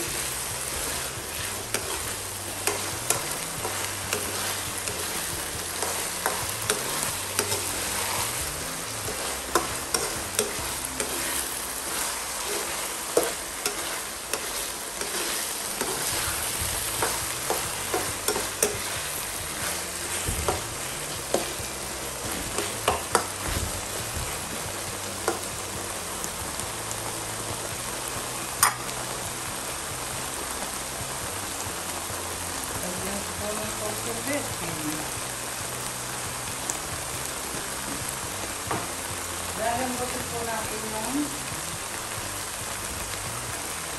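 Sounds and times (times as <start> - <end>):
metal spatula scraping a pan: 0.0 - 21.6
food sizzling in a wok: 0.0 - 43.9.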